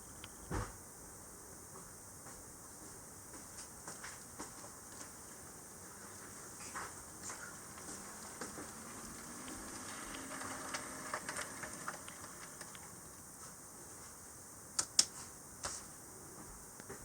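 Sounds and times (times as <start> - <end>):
faint motor hum: 3.7 - 17.0
model train wheels clicking: 7.7 - 12.9.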